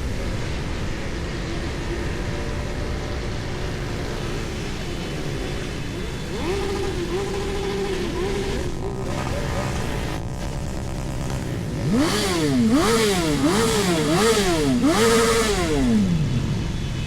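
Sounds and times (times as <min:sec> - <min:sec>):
motorcycle engines rumbling: 0:00.0 - 0:17.0
engine revving up: 0:03.5 - 0:16.8.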